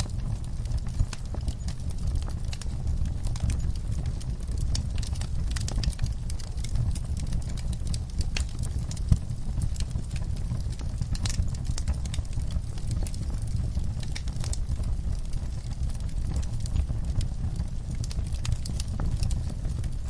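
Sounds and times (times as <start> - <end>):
logs crackling and popping: 0.0 - 20.0
low rumble of flames: 0.0 - 20.0.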